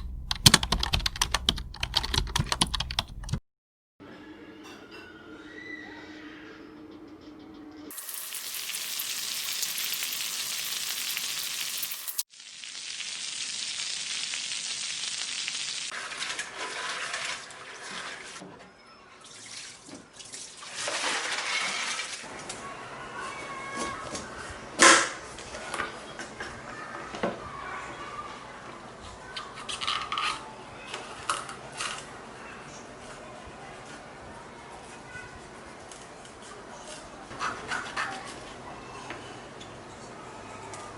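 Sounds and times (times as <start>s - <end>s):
kitchen tap running into sink: 7.9s - 12.2s
splashing and handling: 16.0s - 18.4s, 19.3s - 22.2s.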